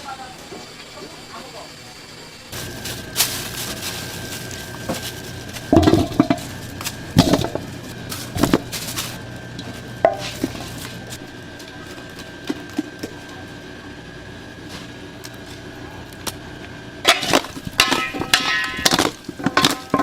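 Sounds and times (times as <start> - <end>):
faint high whine: 0.0 - 17.1
low hum: 2.3 - 20.0
metal kitchenware clanking: 17.0 - 20.0.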